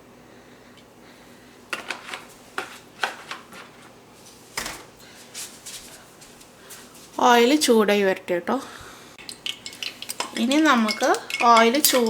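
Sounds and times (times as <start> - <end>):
kitchen items clicking and knocking: 1.7 - 3.9, 9.2 - 12.0.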